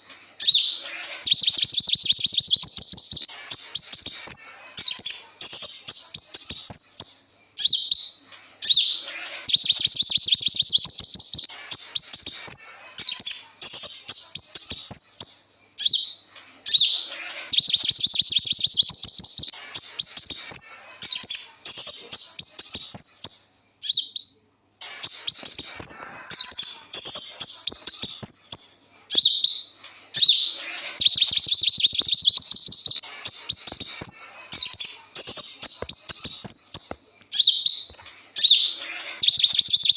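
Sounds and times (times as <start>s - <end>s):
sunbird singing high trills: 0.4s - 4.2s, 23.8s - 39.9s.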